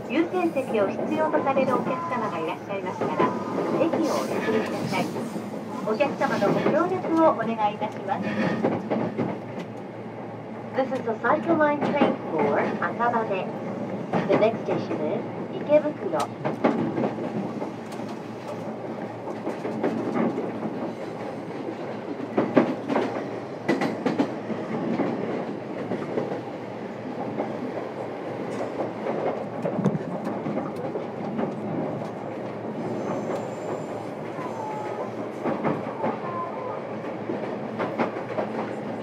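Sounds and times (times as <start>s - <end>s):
train wheels rumbling on rail: 0.0s - 39.0s
clacks over rail joints: 6.4s - 9.8s, 16.2s - 26.4s, 35.2s - 36.3s, 37.0s - 39.0s.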